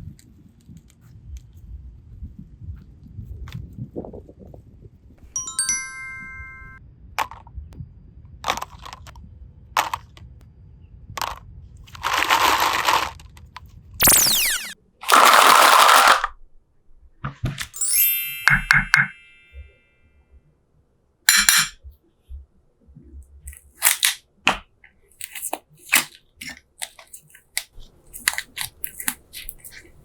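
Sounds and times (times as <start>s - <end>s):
cartoon chime: 5.4s - 6.8s, 17.8s - 19.7s
falling whistle: 14.0s - 14.8s.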